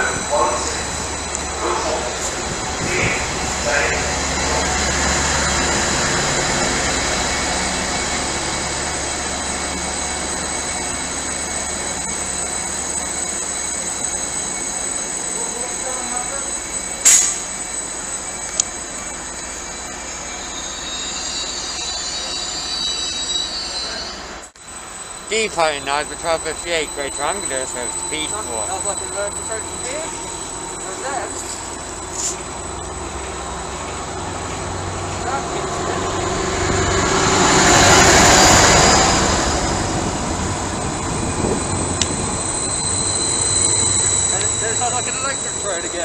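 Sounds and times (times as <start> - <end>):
train rumbling: 0.0 - 46.0
metallic wheel squeal: 9.4 - 33.0, 40.6 - 46.0.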